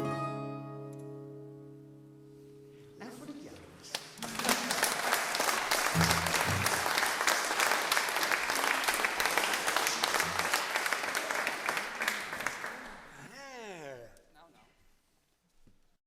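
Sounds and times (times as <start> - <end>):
audience applauding: 3.9 - 13.3.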